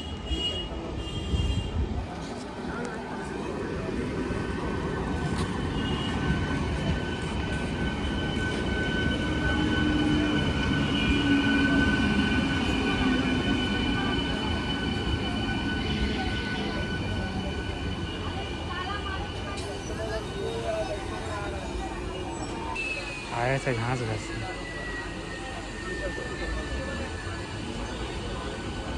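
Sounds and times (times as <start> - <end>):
train rumbling past: 1.6 - 28.9.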